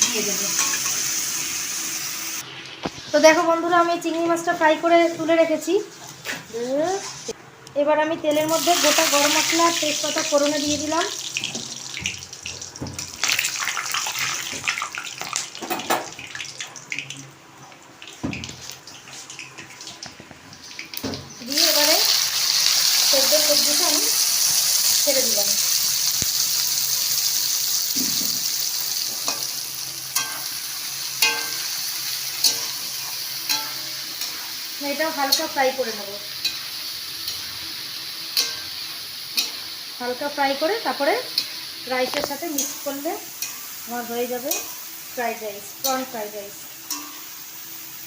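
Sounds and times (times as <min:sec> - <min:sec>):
spices sizzling in hot oil: 0:00.0 - 0:07.4, 0:08.3 - 0:16.8, 0:17.6 - 0:48.0
spatula clinking against pan: 0:31.2 - 0:31.7.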